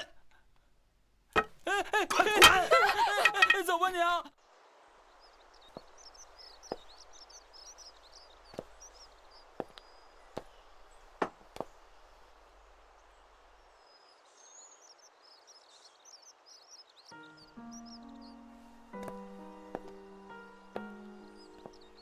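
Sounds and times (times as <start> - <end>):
small birds chirping: 0.0 - 22.0
sharp knocks: 1.4 - 3.7.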